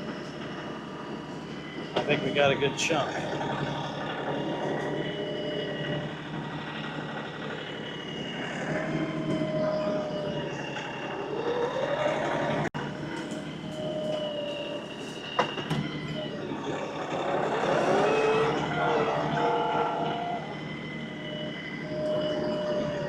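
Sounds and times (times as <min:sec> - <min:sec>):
thin whine: 0:00.0 - 0:23.0
tractor engine running under load: 0:00.0 - 0:23.0.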